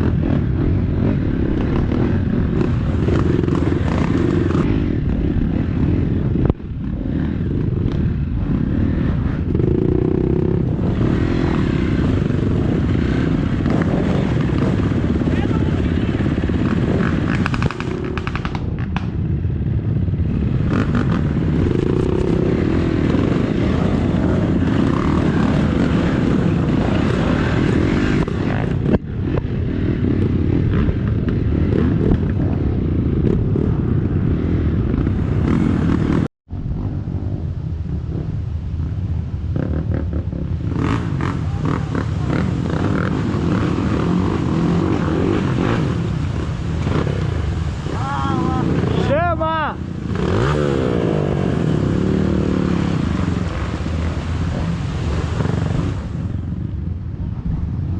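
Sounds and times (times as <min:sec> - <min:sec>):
dirt bike engine running: 0:00.0 - 0:37.4.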